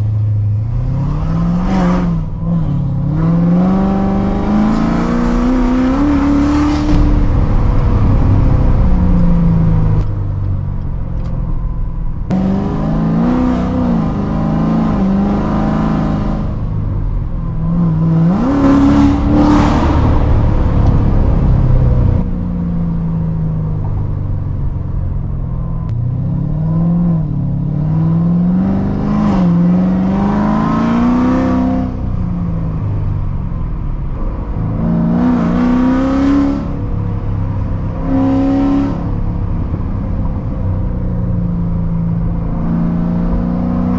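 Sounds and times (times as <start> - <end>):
car engine accelerating: 0.0 - 43.9.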